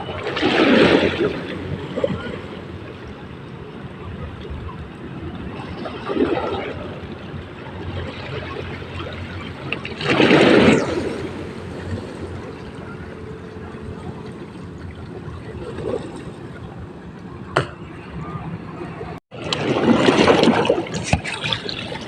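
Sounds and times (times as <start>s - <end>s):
sea water lapping and splashing: 0.0s - 22.0s.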